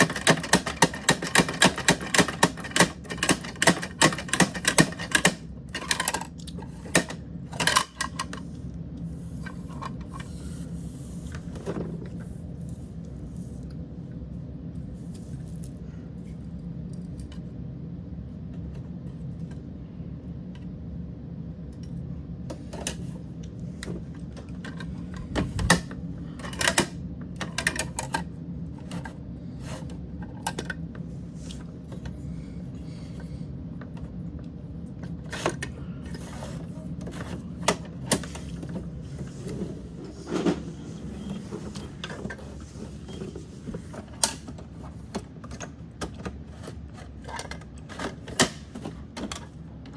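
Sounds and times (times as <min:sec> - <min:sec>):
plastic toy clicks and clatters: 0:00.0 - 0:08.3
steady low hum: 0:00.0 - 0:49.9.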